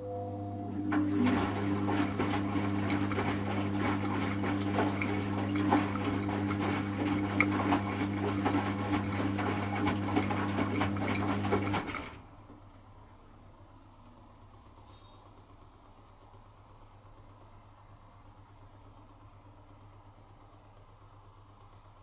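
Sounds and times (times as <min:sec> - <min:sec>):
washing machine motor hum: 0:00.0 - 0:22.0
water sloshing in drum: 0:00.8 - 0:12.1.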